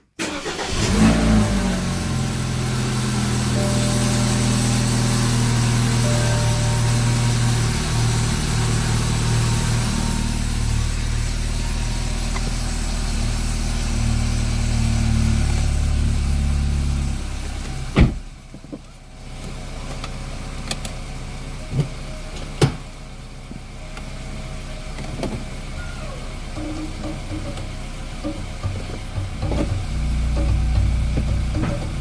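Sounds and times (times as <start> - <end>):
car engine idling: 0.2 - 32.0
sharp thump: 18.0 - 18.3.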